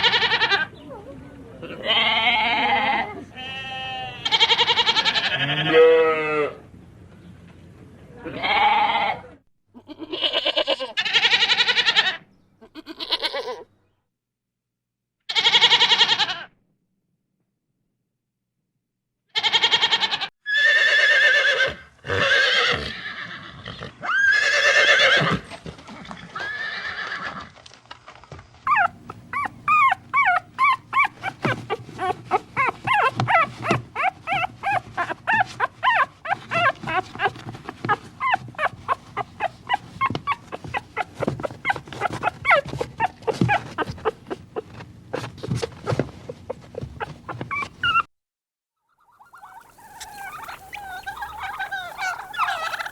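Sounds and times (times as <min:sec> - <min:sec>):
horse whinnying: 0:00.0 - 0:00.7, 0:19.4 - 0:27.6, 0:49.6 - 0:52.9
animal rapid short calls: 0:49.2 - 0:52.9.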